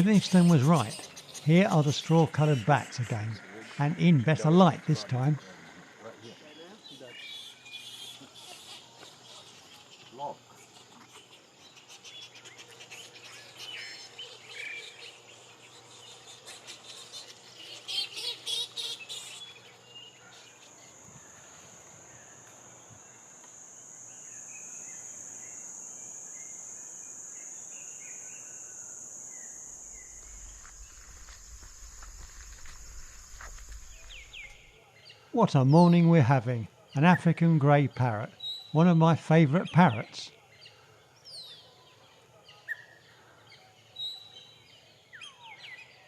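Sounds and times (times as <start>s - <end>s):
high squeaky chirping calls: 0.0s - 5.4s
high-pitched insect drone: 0.0s - 11.8s, 12.4s - 34.8s.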